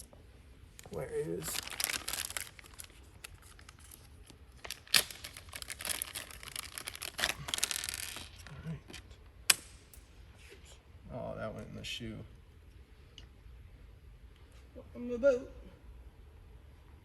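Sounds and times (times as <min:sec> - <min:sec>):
packaging rustling and crinkling: 0:00.8 - 0:09.1.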